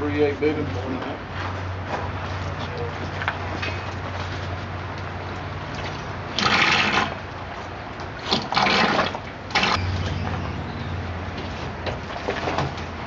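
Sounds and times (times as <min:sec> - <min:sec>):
water splashing and pouring: 0:05.8 - 0:07.2, 0:08.2 - 0:10.4.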